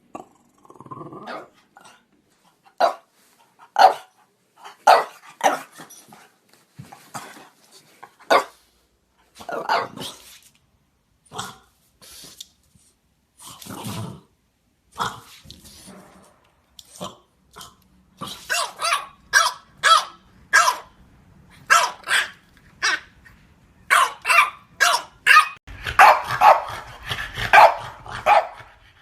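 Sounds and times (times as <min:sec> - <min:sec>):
dog barking: 0:02.8 - 0:03.1, 0:03.8 - 0:04.1, 0:04.8 - 0:05.7, 0:08.3 - 0:08.6, 0:18.5 - 0:20.9, 0:21.7 - 0:23.0, 0:23.9 - 0:26.9, 0:27.5 - 0:28.7.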